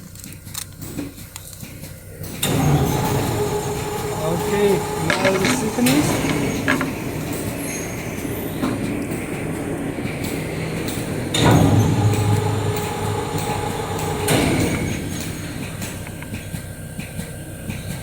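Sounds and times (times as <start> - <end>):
machinery hum: 0.0 - 18.0
small motor humming: 2.2 - 18.0.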